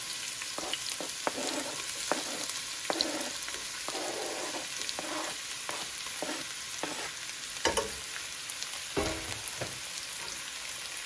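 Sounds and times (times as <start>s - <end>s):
onion sizzling in oil: 0.0s - 11.0s
scrapes on cutting board: 0.6s - 7.2s.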